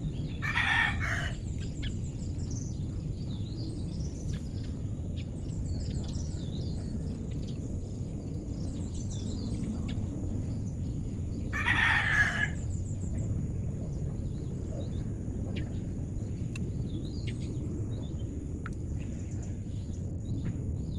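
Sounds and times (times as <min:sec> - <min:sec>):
low background rumble: 0:00.0 - 0:20.9
small birds chirping: 0:00.0 - 0:20.9
insect trill: 0:07.6 - 0:20.4.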